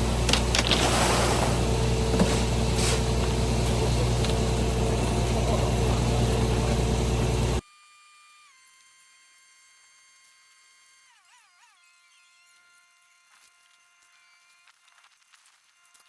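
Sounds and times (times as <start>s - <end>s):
truck engine idling: 0.0s - 7.6s.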